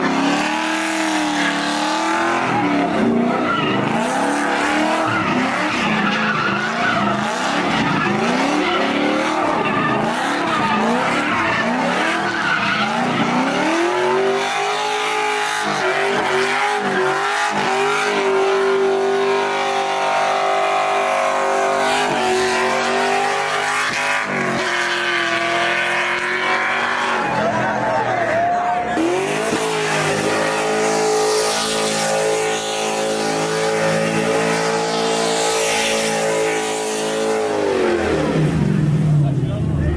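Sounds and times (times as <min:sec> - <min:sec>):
car engine revving: 0:00.0 - 0:39.9
tyres squealing: 0:00.6 - 0:37.1.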